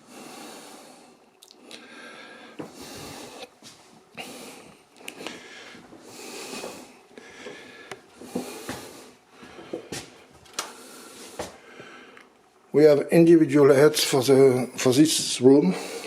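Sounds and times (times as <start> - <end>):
person breathing close: 0.0 - 3.5, 4.2 - 12.3, 15.7 - 16.0.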